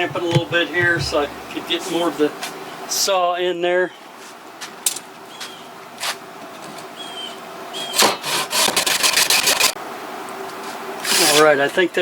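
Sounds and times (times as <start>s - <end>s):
light taps on wood: 0.0s - 1.6s
saw sawing strokes: 8.2s - 9.8s.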